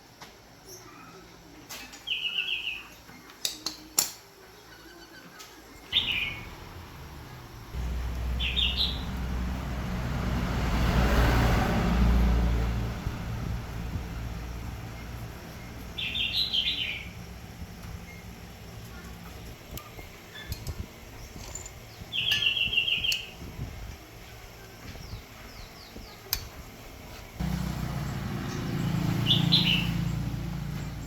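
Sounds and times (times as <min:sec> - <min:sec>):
small birds chirping: 0:00.6 - 0:31.0
motor vehicle passing: 0:06.0 - 0:17.6, 0:27.3 - 0:31.0.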